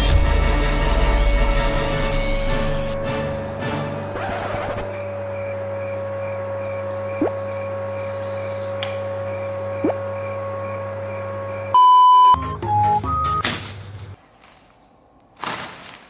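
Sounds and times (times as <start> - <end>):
machine hum: 0.0 - 13.2
loud pure beep: 11.2 - 13.4.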